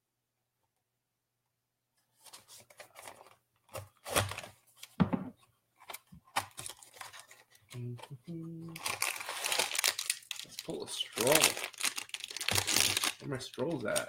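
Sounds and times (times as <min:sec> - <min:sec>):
cardboard packaging rustling and tearing: 0:02.2 - 0:04.9, 0:05.8 - 0:07.8, 0:08.7 - 0:14.0.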